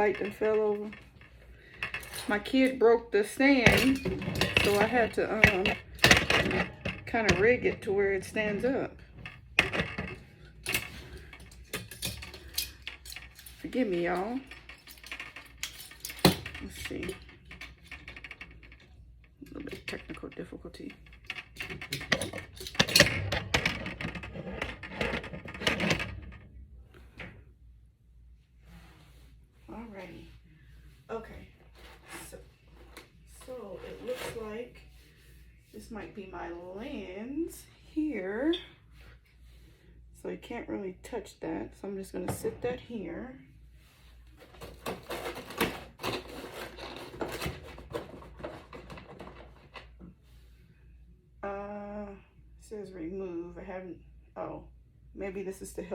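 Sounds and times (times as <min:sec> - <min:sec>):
objects knocked and scraped by hand: 0:00.0 - 0:26.4, 0:44.4 - 0:49.9.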